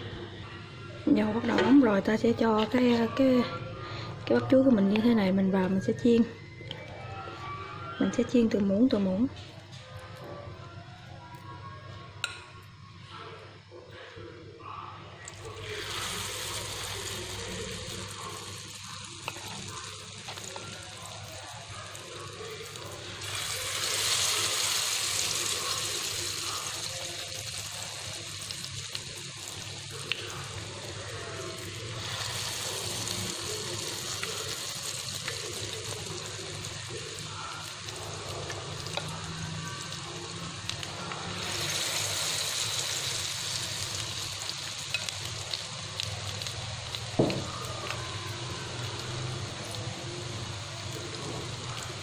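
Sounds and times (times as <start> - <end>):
fritters sizzling in hot oil: 15.3 - 52.0.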